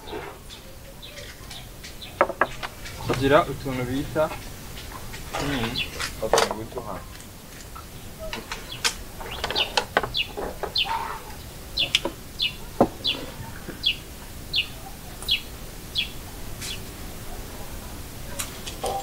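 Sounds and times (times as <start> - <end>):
small bird chirping: 0.0 - 16.9
sharp clicks and knocks: 1.8 - 3.2, 6.0 - 6.6.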